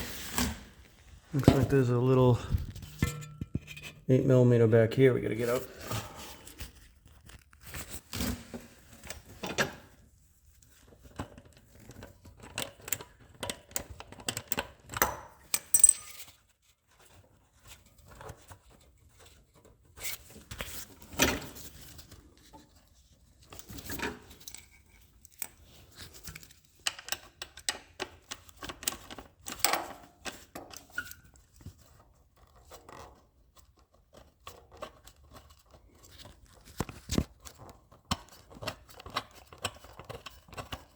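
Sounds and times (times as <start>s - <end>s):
hand tools clicking and clinking: 15.5s - 16.3s.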